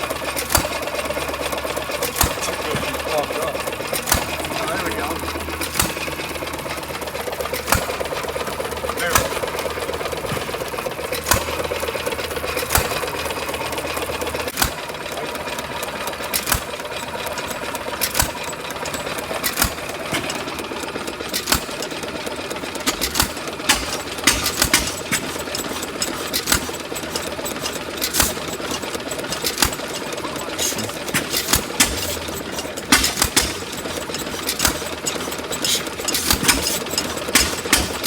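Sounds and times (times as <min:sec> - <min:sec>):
mechanical clatter: 0:00.0 - 0:38.0
gas engine firing bangs: 0:30.6 - 0:35.0.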